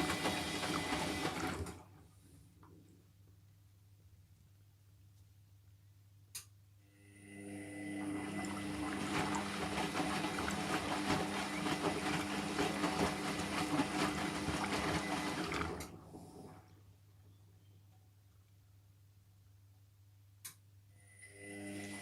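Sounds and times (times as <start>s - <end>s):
pump hum: 0.0s - 2.0s, 7.0s - 16.7s, 21.2s - 22.0s.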